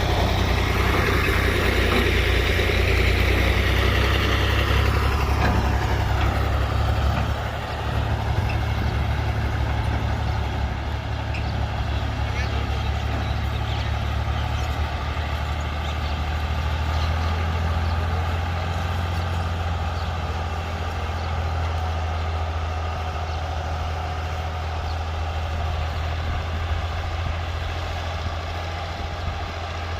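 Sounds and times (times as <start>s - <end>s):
thresher machine noise: 0.0s - 21.7s
low engine drone: 0.0s - 29.9s.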